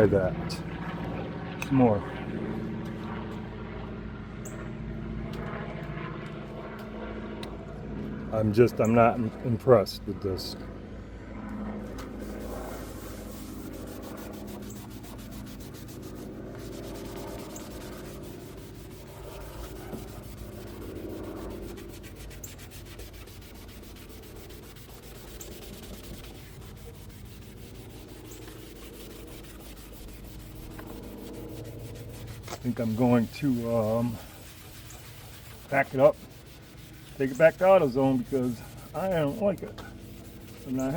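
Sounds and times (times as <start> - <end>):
scrubbing pad rubbing plastic: 12.0 - 40.9.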